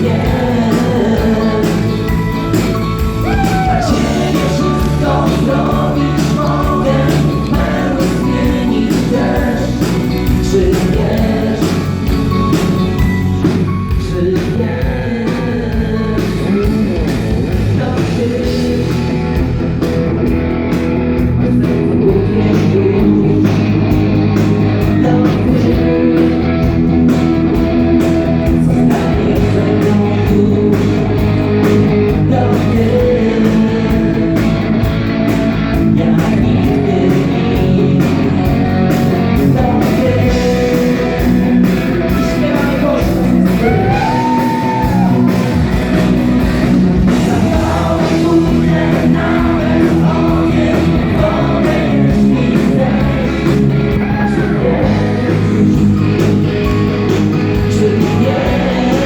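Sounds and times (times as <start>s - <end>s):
gliding lead melody line: 0.0s - 14.2s
live rock band playing: 0.0s - 59.0s.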